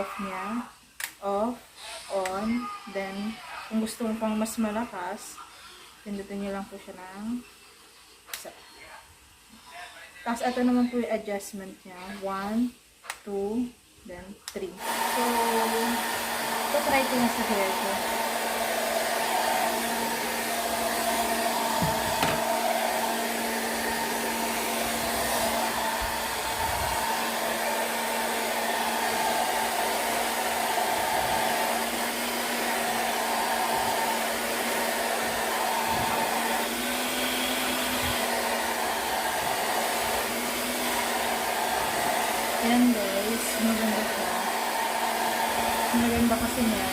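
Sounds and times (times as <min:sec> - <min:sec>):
hair dryer blowing air: 0:14.8 - 0:46.9.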